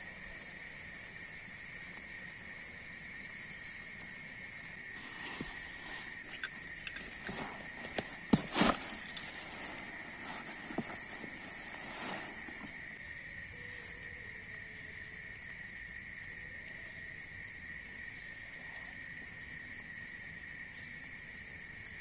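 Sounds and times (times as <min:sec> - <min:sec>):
high insect chorus: 0:00.0 - 0:22.0
rustling: 0:04.6 - 0:13.0.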